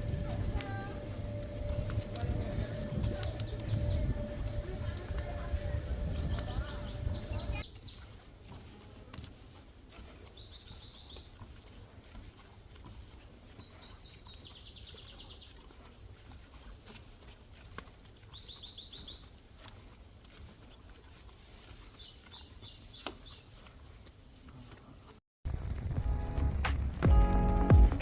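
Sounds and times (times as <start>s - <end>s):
steady low rumble: 0.0s - 7.7s, 25.5s - 28.0s
songbird singing: 0.0s - 25.2s
music: 25.5s - 28.0s.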